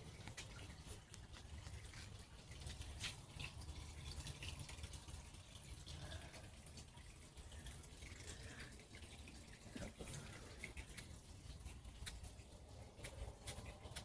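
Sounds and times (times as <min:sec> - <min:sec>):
water trickling: 0:00.0 - 0:14.0
small ticks: 0:10.8 - 0:14.0.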